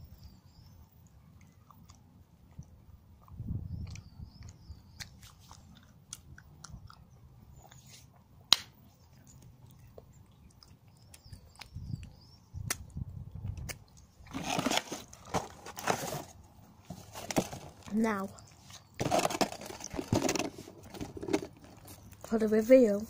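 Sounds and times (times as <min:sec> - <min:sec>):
chewing chocolate: 0:00.6 - 0:08.3, 0:09.0 - 0:14.4
cardboard box rustling: 0:14.3 - 0:18.0, 0:19.0 - 0:22.0.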